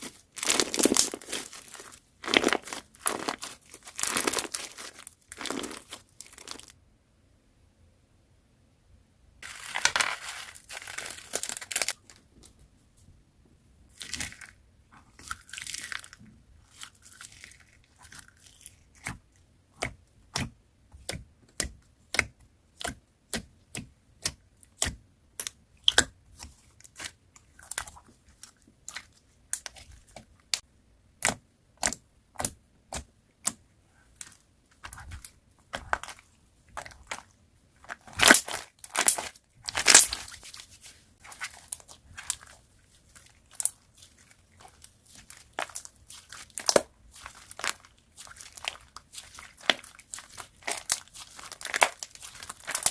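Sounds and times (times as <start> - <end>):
slime crinkling rustles: 0.0 - 6.8, 9.4 - 12.6, 13.9 - 19.2, 34.0 - 52.9.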